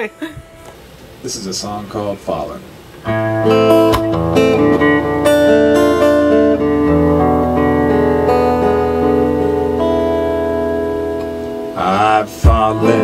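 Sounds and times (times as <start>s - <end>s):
acoustic guitar strumming chords: 2.9s - 13.0s.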